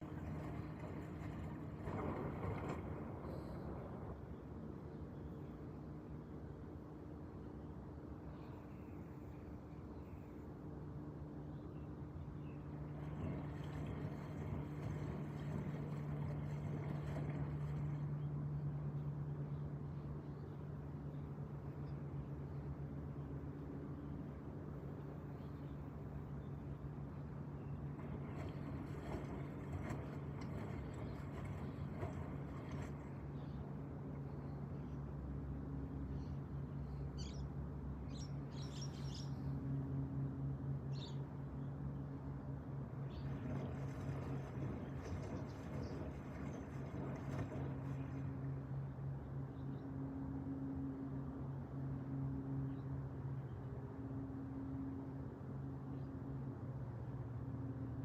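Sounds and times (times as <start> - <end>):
washing machine motor hum: 0.0 - 4.2, 12.6 - 19.4, 27.3 - 34.7, 42.8 - 49.3.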